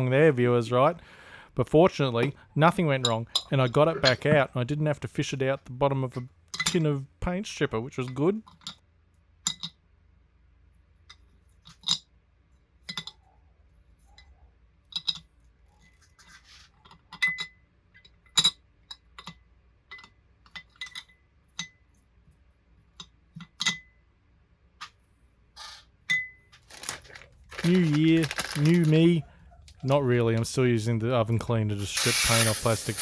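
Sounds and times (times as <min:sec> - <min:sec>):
small hard parts clinking: 0:26.1 - 0:30.5, 0:31.8 - 0:33.0.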